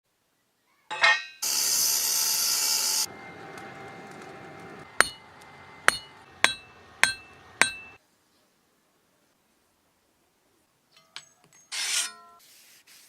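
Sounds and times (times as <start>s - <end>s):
hammer striking steel: 0.9s - 1.6s, 3.0s - 8.0s
loud hiss: 1.4s - 6.5s.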